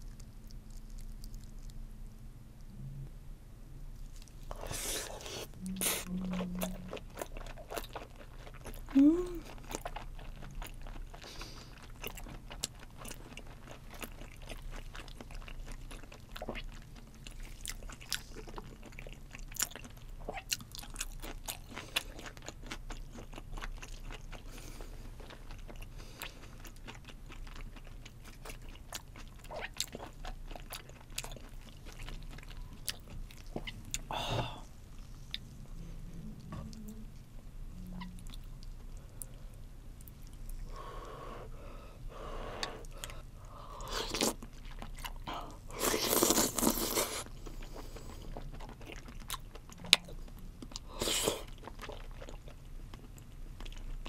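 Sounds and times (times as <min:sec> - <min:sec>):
person humming: 0:05.6 - 0:07.0, 0:08.9 - 0:09.5, 0:35.8 - 0:37.2.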